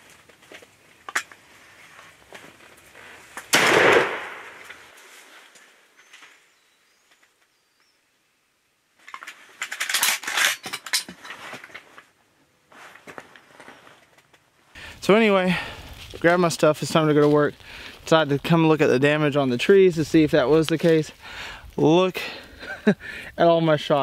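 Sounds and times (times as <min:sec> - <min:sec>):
crackling rustle: 0:00.0 - 0:07.9, 0:09.0 - 0:24.0
shotgun blast: 0:03.5 - 0:04.7.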